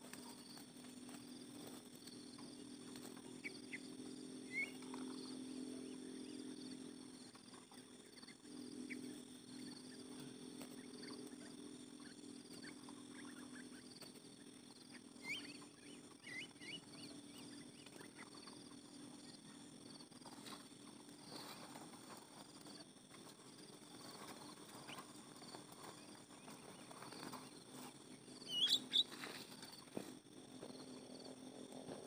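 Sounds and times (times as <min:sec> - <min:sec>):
small birds chirping: 0:00.0 - 0:30.0
insects buzzing: 0:00.0 - 0:32.0
bird rising whistle: 0:28.5 - 0:29.1.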